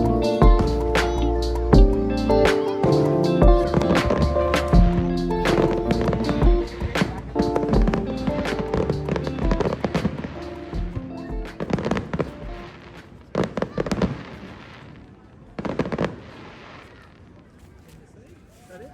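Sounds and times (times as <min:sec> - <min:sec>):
music playing: 0:00.0 - 0:12.9
fireworks crackling: 0:02.4 - 0:18.1.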